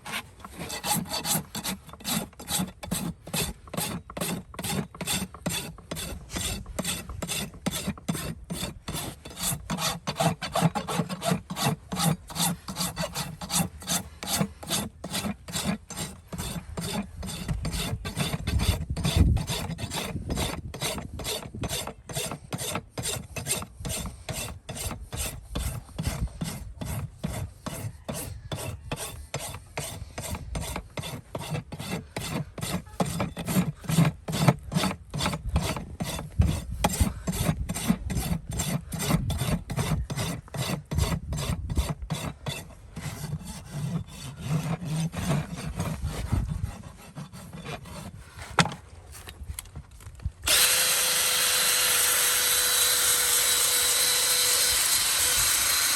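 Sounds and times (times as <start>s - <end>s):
rasp filing a hoof: 0.0s - 49.8s, 50.5s - 55.9s
power tool whirring: 50.4s - 55.9s.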